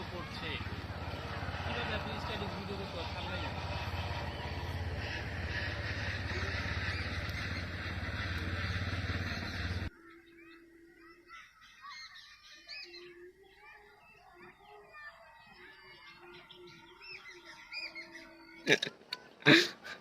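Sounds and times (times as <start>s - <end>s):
birds chirping: 0.0s - 20.0s
loud rushing noise with low rumble: 0.6s - 9.9s.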